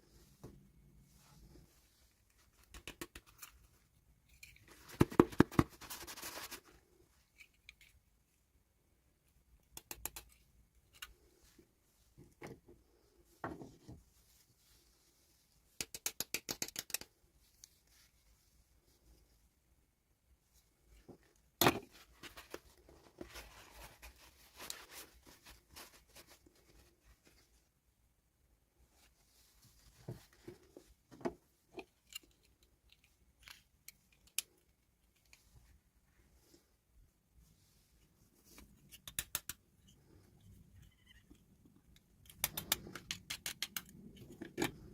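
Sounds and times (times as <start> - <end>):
plastic pieces clicking and knocking: 15.8 - 17.1, 42.2 - 44.9
sharp plastic snaps: 15.8 - 17.1, 42.2 - 44.8.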